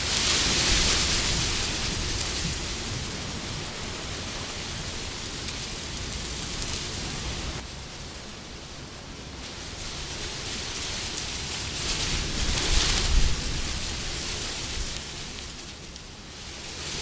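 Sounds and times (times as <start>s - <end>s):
steady wind: 0.0s - 17.0s.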